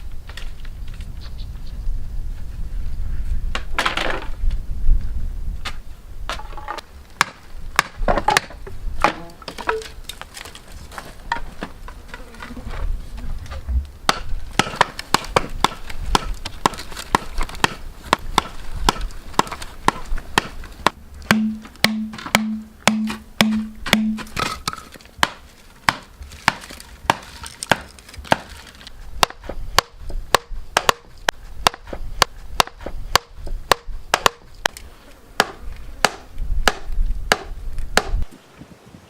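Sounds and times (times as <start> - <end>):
tool striking bamboo: 14.1 - 34.5, 35.4 - 38.3.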